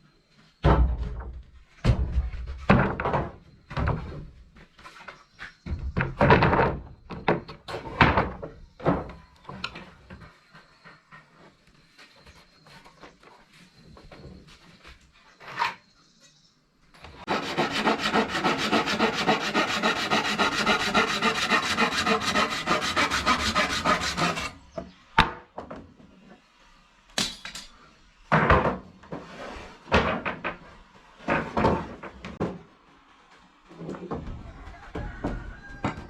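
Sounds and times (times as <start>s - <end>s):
scraping on wood: 17.2s - 24.7s.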